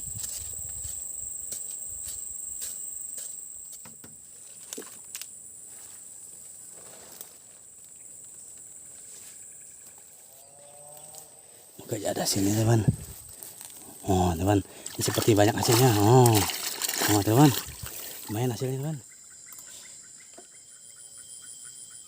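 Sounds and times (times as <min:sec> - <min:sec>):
high-pitched insect drone: 0:00.0 - 0:06.2, 0:07.9 - 0:22.0
rustling: 0:04.3 - 0:09.4.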